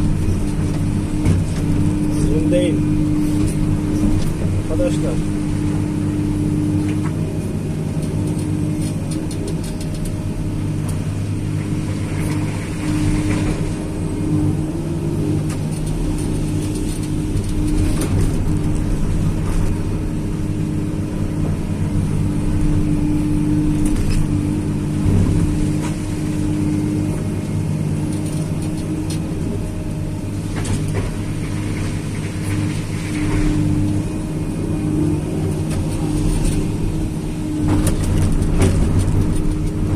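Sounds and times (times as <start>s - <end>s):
diesel engine running: 0.0s - 39.9s
machine knocks and scrapes: 37.6s - 39.9s.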